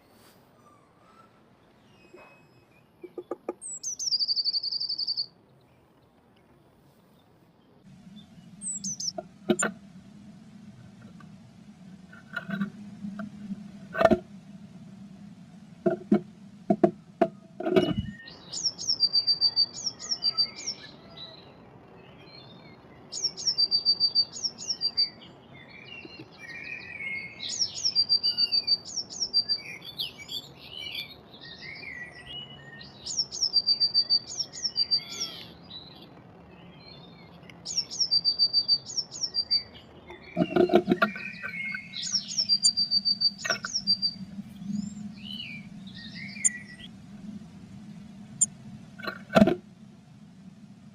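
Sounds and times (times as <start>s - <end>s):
blue tit singing: 1.0s - 5.3s, 7.9s - 9.8s, 16.8s - 21.4s, 23.1s - 46.9s.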